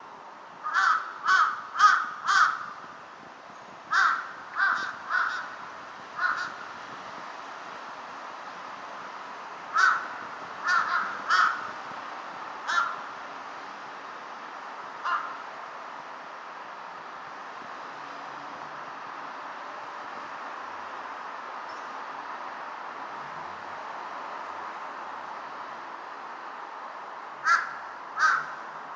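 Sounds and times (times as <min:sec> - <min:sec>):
crows cawing: 0:00.6 - 0:02.8, 0:03.9 - 0:06.7, 0:09.7 - 0:11.8, 0:12.7 - 0:13.1, 0:15.0 - 0:15.5, 0:27.4 - 0:28.7.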